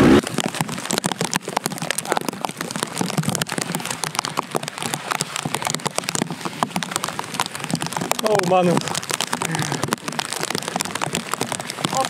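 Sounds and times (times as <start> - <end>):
rain drops pattering: 0.0 - 12.0.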